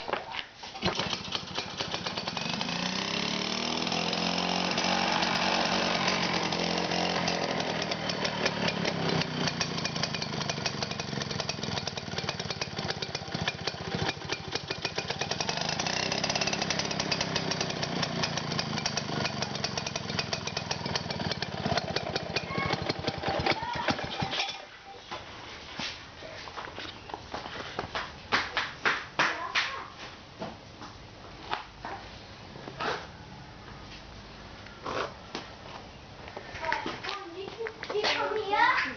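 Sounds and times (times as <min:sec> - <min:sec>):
two-stroke mower engine running: 0:00.7 - 0:24.7.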